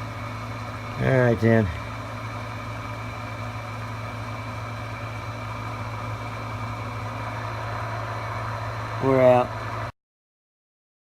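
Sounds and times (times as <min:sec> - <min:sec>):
radio low hum: 0:04.8 - 0:09.9
radio static hiss: 0:06.6 - 0:09.9.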